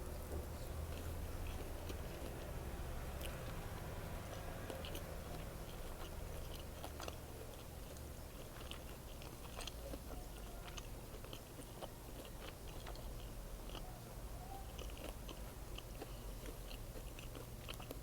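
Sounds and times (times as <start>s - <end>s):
chewing with soft crunches: 0.0s - 18.0s
low steady hum: 0.0s - 18.0s.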